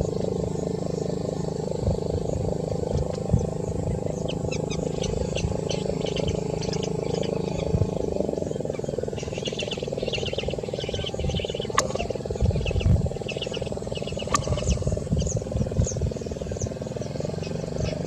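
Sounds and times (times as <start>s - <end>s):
birds chirping and trilling: 0.0s - 18.0s
low rumble: 0.0s - 18.0s.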